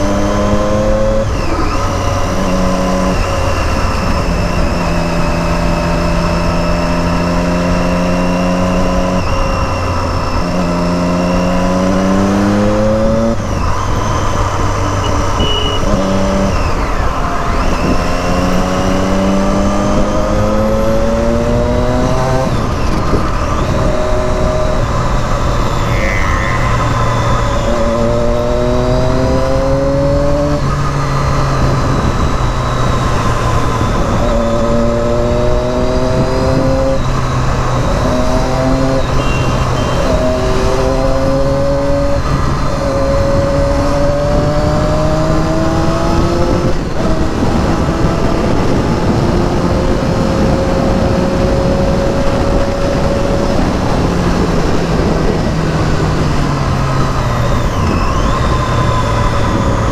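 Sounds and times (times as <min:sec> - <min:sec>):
motorcycle engine accelerating: 0:00.0 - 0:59.9
wind and road noise: 0:00.0 - 0:59.9.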